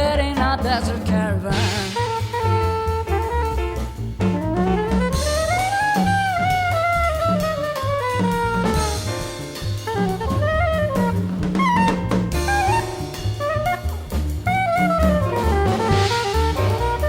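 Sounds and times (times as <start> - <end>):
drums: 0.0 - 17.0
jazz band playing: 0.0 - 17.0
lead melody line: 0.0 - 17.0
repeating low bass: 0.0 - 17.0.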